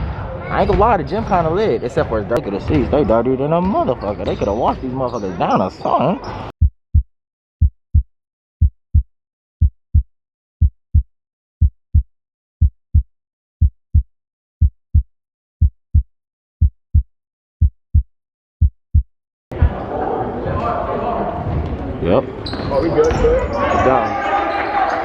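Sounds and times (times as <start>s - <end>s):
heartbeat thumps: 6.6s - 19.8s.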